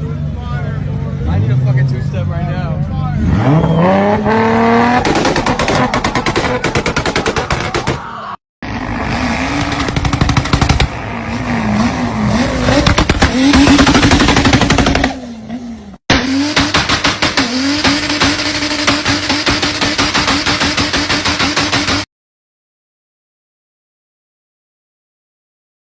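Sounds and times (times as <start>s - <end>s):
car engine on launch limiter: 3.2s - 6.8s
exhaust pops and bangs: 4.8s - 8.1s, 9.5s - 11.0s, 12.6s - 15.2s, 16.1s - 22.1s.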